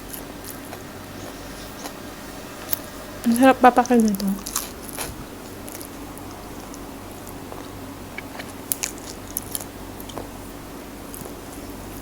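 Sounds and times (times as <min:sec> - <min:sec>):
person chewing food: 0:00.0 - 0:03.0, 0:03.9 - 0:12.0
wet mouth clicks and smacks: 0:05.7 - 0:10.3.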